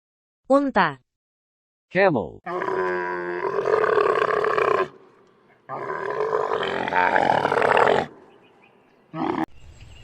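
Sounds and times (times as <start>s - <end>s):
camel calling: 2.5s - 9.5s.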